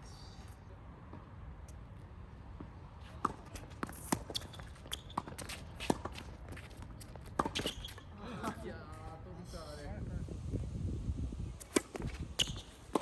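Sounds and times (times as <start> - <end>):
shoe squeaks: 3.0 - 8.1, 11.7 - 13.0
low wind rumble: 9.2 - 12.9.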